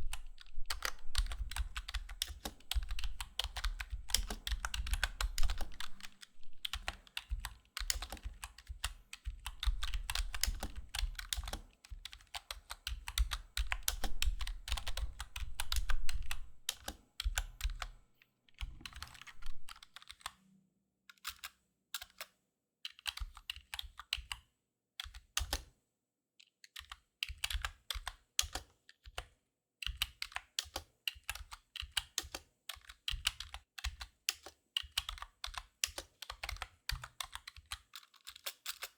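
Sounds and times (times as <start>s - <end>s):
low thuds under keystrokes: 0.0s - 11.5s, 13.1s - 17.8s, 18.6s - 19.9s
keyboard typing: 0.1s - 17.9s, 18.6s - 20.3s.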